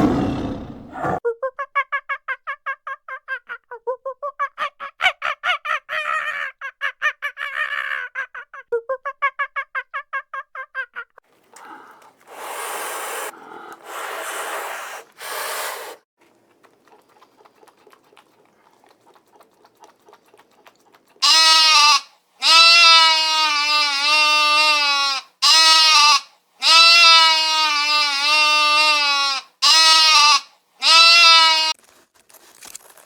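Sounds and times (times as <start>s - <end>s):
breathy hissing bursts: 11.5s - 16.1s
goat bleating: 21.2s - 31.8s.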